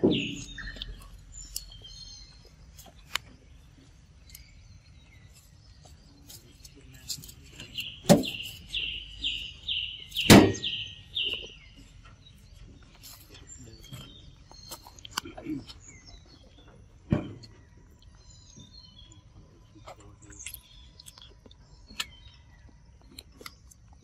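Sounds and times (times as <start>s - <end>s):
sharp knocks near microphone: 0.0s - 0.6s, 8.0s - 8.4s, 10.2s - 10.8s
bird calling: 0.0s - 16.8s.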